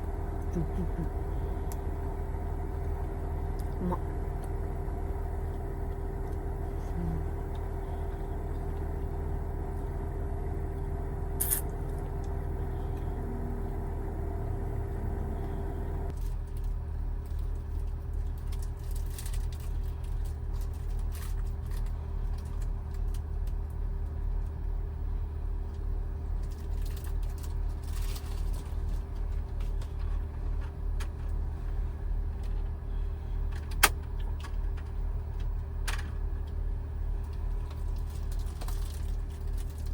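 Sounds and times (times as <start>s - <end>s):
van engine humming: 0.0s - 39.9s.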